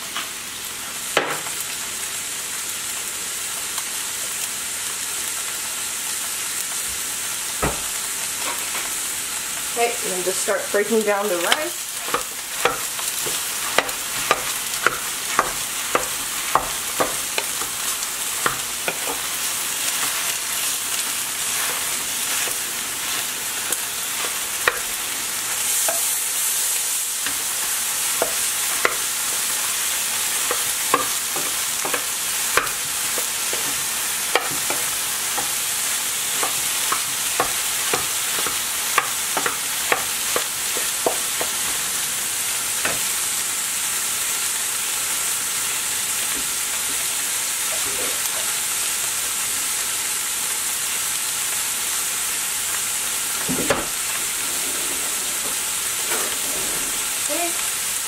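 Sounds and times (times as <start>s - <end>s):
food sizzling in frying pan: 0.0s - 58.0s
spatula knocking and scraping pan: 10.3s - 26.2s, 27.2s - 41.8s.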